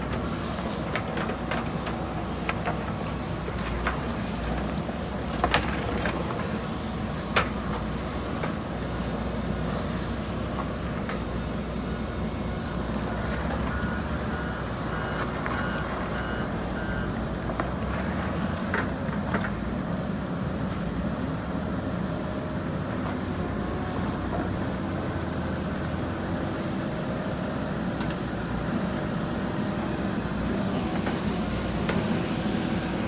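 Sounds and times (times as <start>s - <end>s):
reversing alarm beeps: 12.6s - 17.3s.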